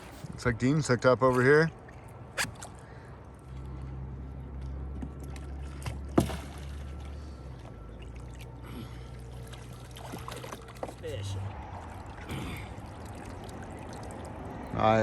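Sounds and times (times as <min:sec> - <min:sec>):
water lapping around kayak: 0:00.0 - 0:00.4, 0:01.1 - 0:15.0
low steady hum: 0:00.0 - 0:15.0.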